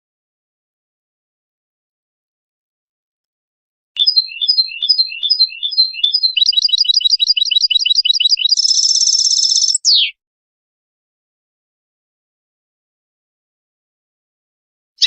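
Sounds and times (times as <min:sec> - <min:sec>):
finch hybrid singing: 0:04.0 - 0:10.2.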